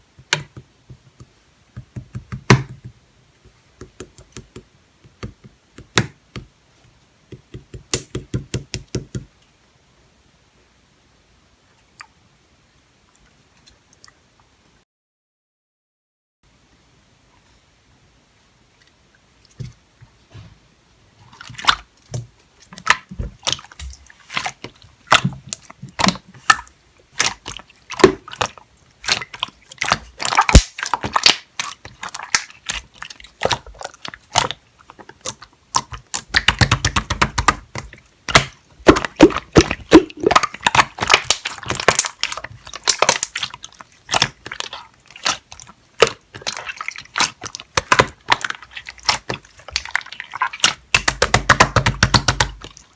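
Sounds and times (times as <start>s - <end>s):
slime squelching by hand: 21.2s - 52.9s.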